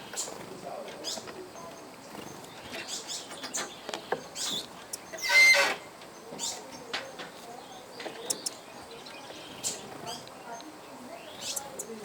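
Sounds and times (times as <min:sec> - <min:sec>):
bird chirps and clicks: 0:00.0 - 0:12.0
loud harsh bird call: 0:05.1 - 0:05.9.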